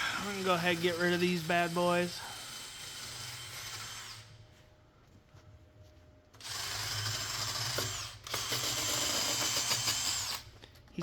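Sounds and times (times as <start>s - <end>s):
power tool running: 6.4s - 10.5s.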